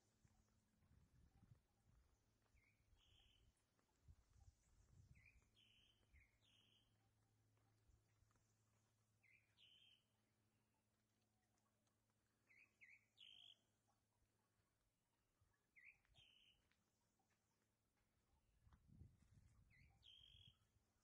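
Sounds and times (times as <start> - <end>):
high bird chirping: 5.2 - 6.9, 9.2 - 10.0, 12.5 - 13.6, 15.8 - 16.6, 19.7 - 20.6.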